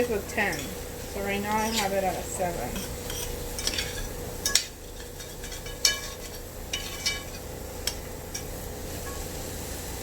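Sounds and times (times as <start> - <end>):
utensil clinking against pan: 2.7 - 8.5.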